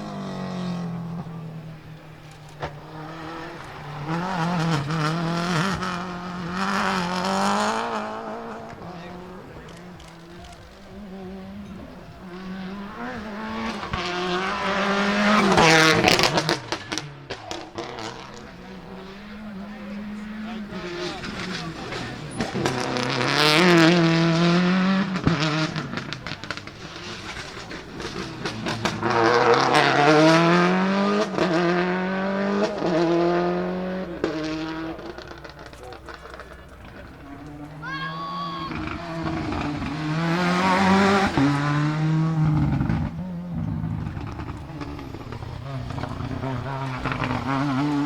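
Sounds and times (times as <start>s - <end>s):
rally car engine at full throttle: 0.0s - 48.0s
sharp cracks at gear changes: 0.0s - 48.0s
exhaust pops and bangs: 20.5s - 30.6s, 34.1s - 37.8s, 38.7s - 48.0s.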